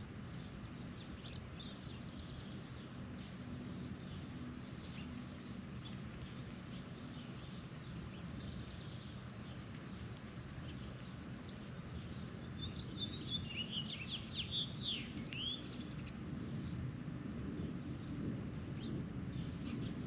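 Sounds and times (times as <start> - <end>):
low background rumble: 0.0 - 20.0
bird chirping: 0.2 - 16.2.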